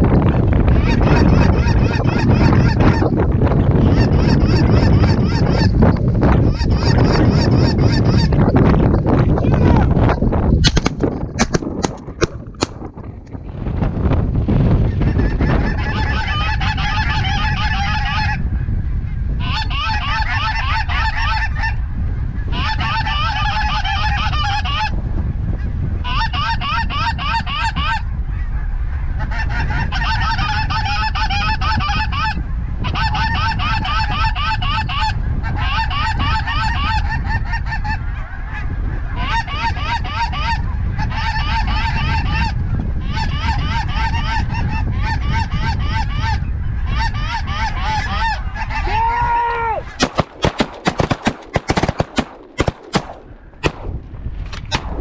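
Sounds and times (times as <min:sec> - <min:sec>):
wind rumble on microphone: 0:00.0 - 0:55.0
geese honking: 0:00.8 - 0:08.5, 0:19.4 - 0:21.8, 0:22.5 - 0:24.9.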